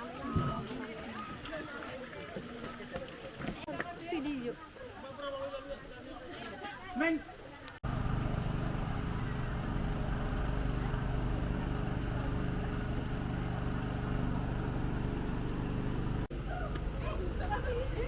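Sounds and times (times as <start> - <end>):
engine running steadily: 7.8 - 18.0.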